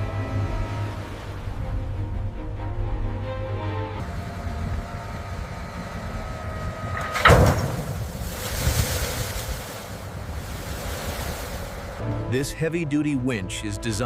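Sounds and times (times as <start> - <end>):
rushing surf-like noise: 7.0 - 12.0.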